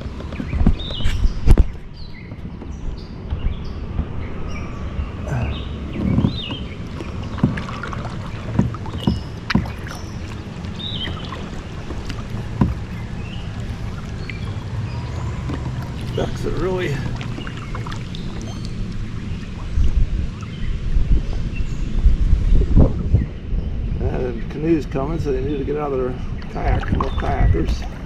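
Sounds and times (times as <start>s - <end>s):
paddle strokes in water: 0.0s - 4.2s, 5.7s - 23.1s, 26.2s - 28.0s
wind rumble on microphone: 0.0s - 28.0s
paddle knocking against hull: 5.9s - 19.5s, 26.6s - 28.0s.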